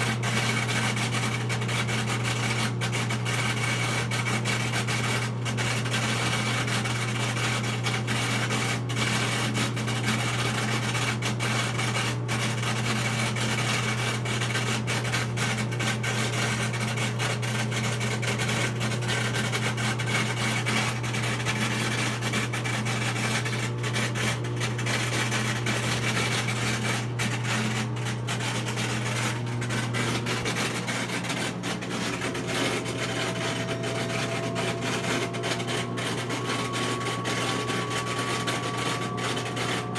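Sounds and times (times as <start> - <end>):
washing machine low hum: 27.2 - 39.9
washing machine rubbing rasping: 27.3 - 39.9
faint rising whine: 31.8 - 39.9.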